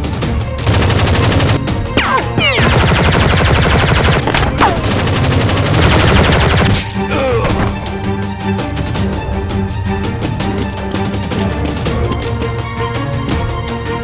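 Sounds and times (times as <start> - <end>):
background music: 0.0 - 14.0
automatic gunfire: 0.7 - 1.6, 2.5 - 6.8.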